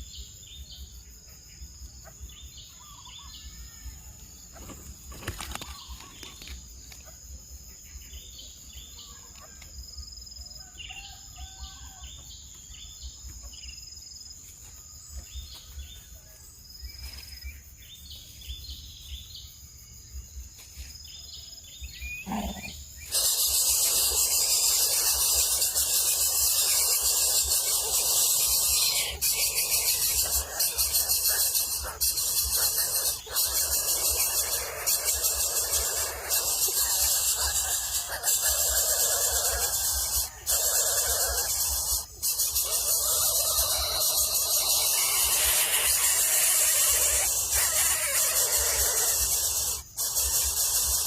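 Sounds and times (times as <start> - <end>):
faint bird chirps: 0.0 - 51.0
high insect-like tone: 0.0 - 51.0
loud steady hiss: 23.0 - 51.0.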